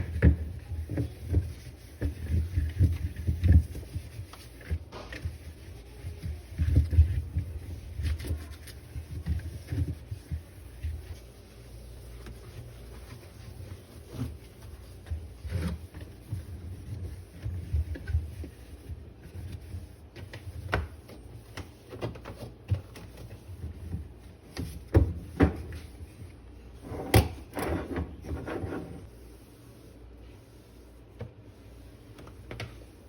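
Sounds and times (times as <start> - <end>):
fridge drawers and shelves clattering: 26.8 - 29.0.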